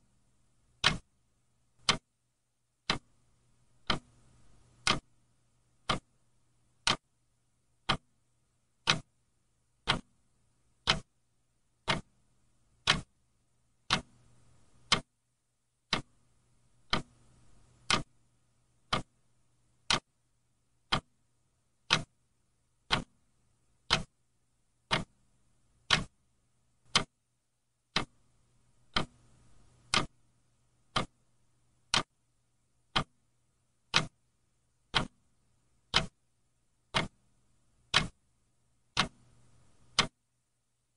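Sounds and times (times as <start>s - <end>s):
faint low hum: 0.0s - 40.9s
clock ticking: 0.8s - 1.1s, 1.8s - 2.1s, 2.8s - 3.2s, 3.8s - 5.1s, 5.8s - 6.2s, 6.8s - 7.0s, 7.8s - 8.1s, 8.8s - 9.1s, 9.8s - 10.2s, 10.8s - 11.1s, 11.8s - 12.2s, 12.8s - 13.2s, 13.8s - 15.1s, 15.8s - 16.2s, 16.8s - 18.2s, 18.8s - 19.2s, 19.8s - 20.1s, 20.8s - 21.2s, 21.8s - 22.1s, 22.8s - 23.2s, 23.8s - 24.2s, 24.8s - 25.2s, 25.8s - 26.2s, 26.8s - 27.2s, 27.9s - 30.2s, 30.8s - 31.2s, 31.8s - 32.2s, 32.9s - 33.2s, 33.8s - 34.3s, 34.9s - 36.2s, 36.9s - 37.3s, 37.9s - 38.2s, 38.9s - 40.2s.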